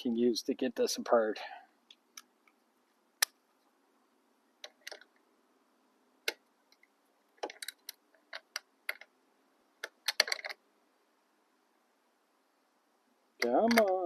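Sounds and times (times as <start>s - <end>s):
metal sockets clinking: 7.4s - 9.0s, 9.8s - 10.6s, 13.4s - 14.0s.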